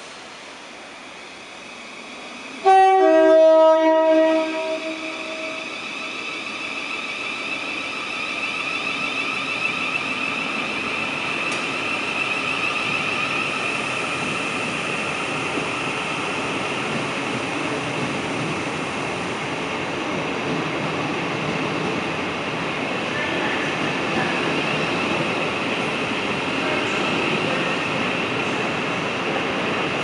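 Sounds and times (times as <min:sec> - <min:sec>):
train two-tone horn: 0:02.6 - 0:05.7.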